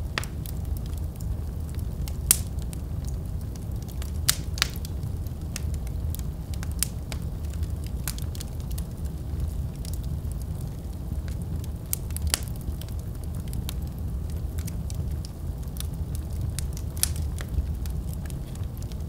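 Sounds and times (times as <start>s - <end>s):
fire crackles and pops: 0.0s - 19.0s
low rumble of flames: 0.0s - 19.0s.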